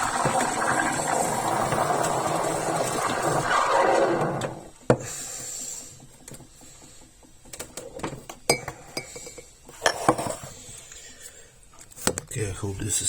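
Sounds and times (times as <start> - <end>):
jug and cups clinking: 8.5 - 10.4.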